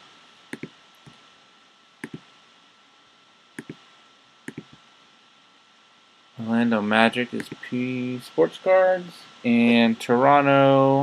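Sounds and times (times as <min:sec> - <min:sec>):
computer mouse clicking: 0:00.5 - 0:01.2, 0:02.0 - 0:02.2, 0:03.6 - 0:03.8, 0:04.5 - 0:04.8, 0:07.4 - 0:07.6.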